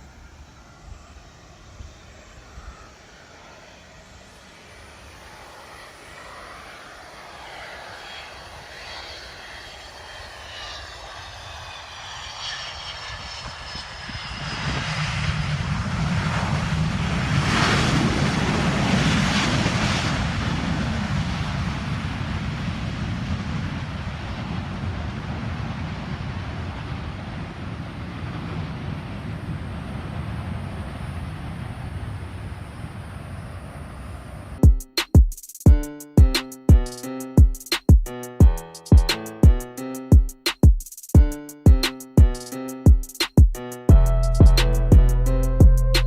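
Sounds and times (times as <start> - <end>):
jet airliner engine roar: 0.0 - 34.6.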